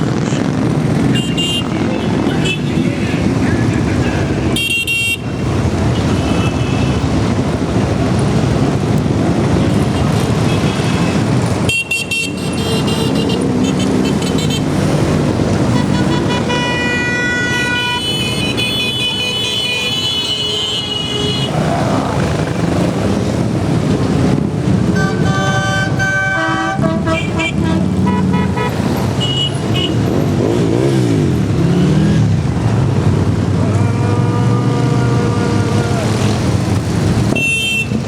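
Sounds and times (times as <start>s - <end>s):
motorcycle engines rumbling: 0.0s - 38.0s
vehicle horns honking: 1.0s - 7.1s, 9.8s - 14.8s, 15.6s - 21.7s, 24.8s - 31.2s, 33.7s - 36.4s, 37.3s - 38.0s.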